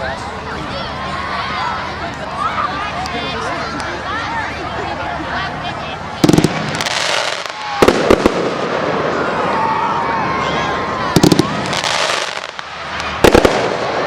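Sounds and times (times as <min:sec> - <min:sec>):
fireworks bursting bangs: 0:06.2 - 0:09.6, 0:11.1 - 0:14.0.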